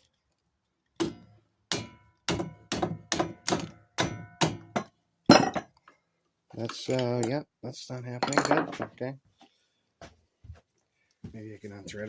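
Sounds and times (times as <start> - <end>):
hammer striking metal: 1.0 - 5.6.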